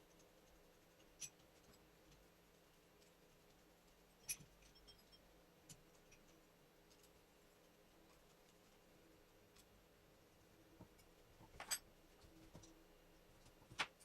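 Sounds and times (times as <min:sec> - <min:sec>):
faint clicks and taps: 0:10.8 - 0:14.0.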